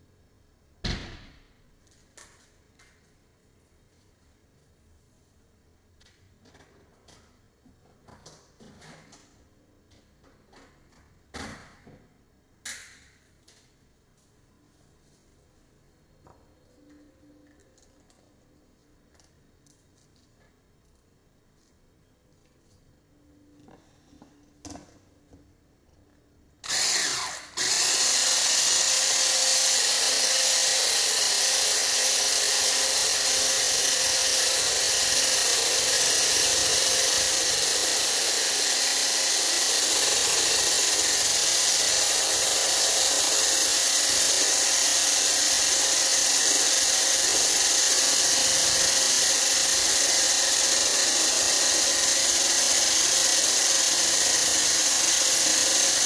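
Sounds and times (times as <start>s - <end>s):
electric kitchen mixer motor: 26.6s - 56.0s.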